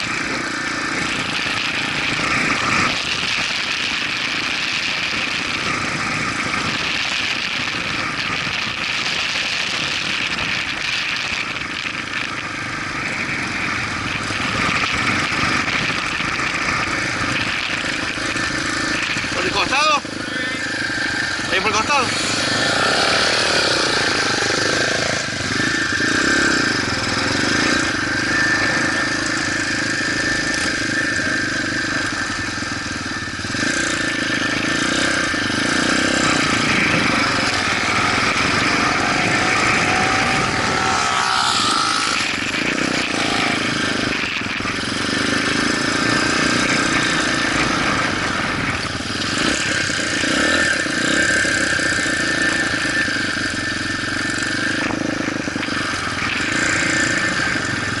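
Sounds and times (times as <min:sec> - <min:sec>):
motorcycle engine running: 0:00.0 - 0:58.0
road and wind noise: 0:00.0 - 0:58.0.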